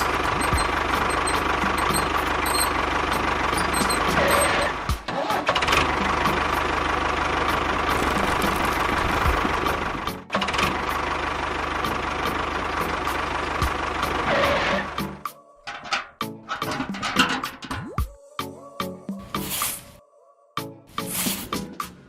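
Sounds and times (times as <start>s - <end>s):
small engine knocking: 0.0s - 4.8s, 7.4s - 10.1s.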